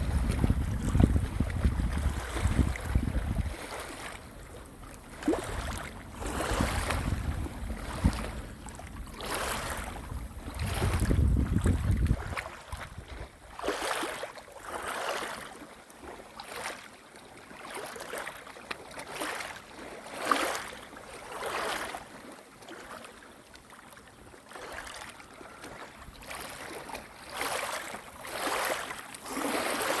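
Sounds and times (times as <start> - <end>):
wind rumbling on microphone: 0.0 - 13.6
small waves lapping: 0.0 - 30.0.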